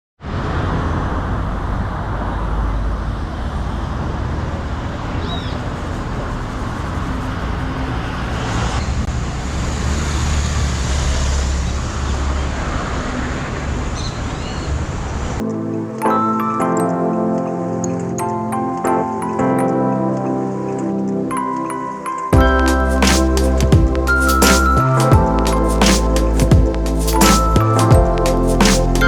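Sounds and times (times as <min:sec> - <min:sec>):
rumble of passing vehicles: 0:00.2 - 0:15.4.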